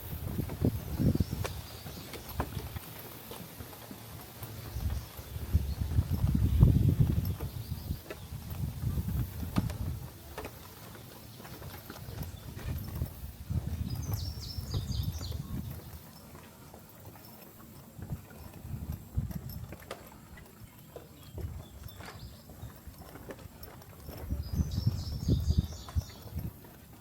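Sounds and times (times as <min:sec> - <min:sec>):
footsteps on a trail: 0:00.0 - 0:27.0
bird chirping: 0:13.8 - 0:16.3, 0:24.3 - 0:26.5.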